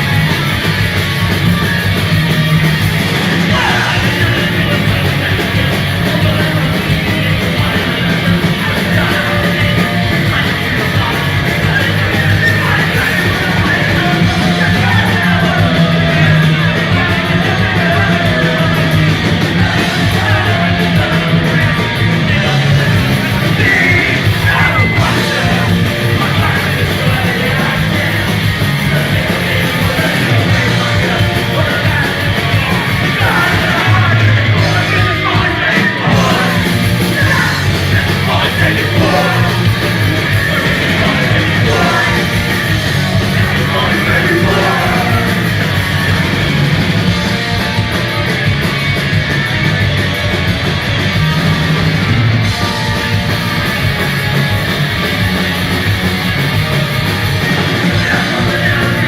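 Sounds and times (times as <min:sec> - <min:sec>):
punk rock band playing: 0:00.0 - 0:59.0
shouted vocals: 0:02.8 - 0:47.1.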